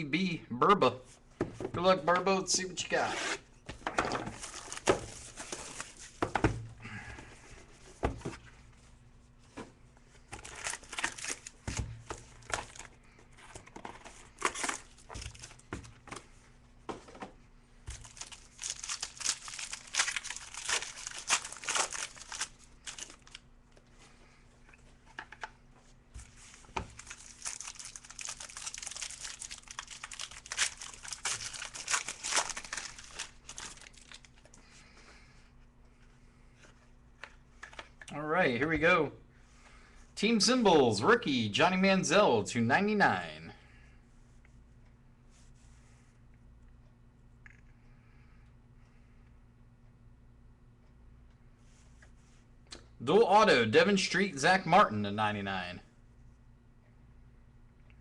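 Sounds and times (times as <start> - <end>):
plastic wrapping crinkling and tearing: 4.3 - 6.1, 10.3 - 11.6, 13.6 - 15.6, 17.9 - 23.4, 26.4 - 34.6.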